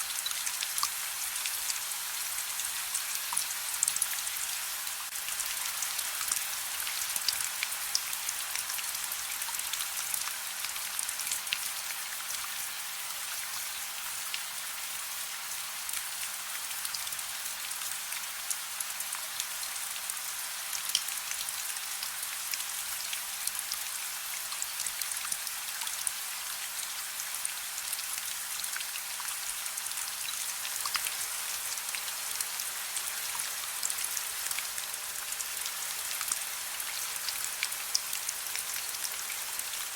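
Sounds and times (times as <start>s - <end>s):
gentle rain: 0.0s - 39.9s.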